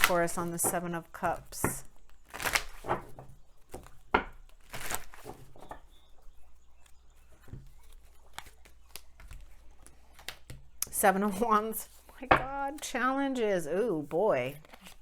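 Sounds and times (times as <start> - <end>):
cards tapping and flicking: 0.0 - 0.8, 1.5 - 5.8, 6.8 - 12.9
cards rustling: 0.0 - 15.0.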